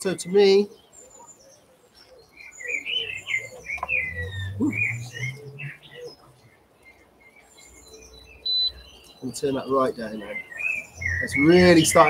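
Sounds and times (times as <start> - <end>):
songbird chirps and whistles: 0.7 - 12.0
low hum: 3.7 - 6.5.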